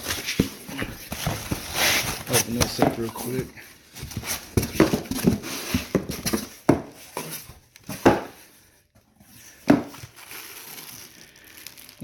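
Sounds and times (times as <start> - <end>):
cardboard box rustling: 0.0 - 8.5.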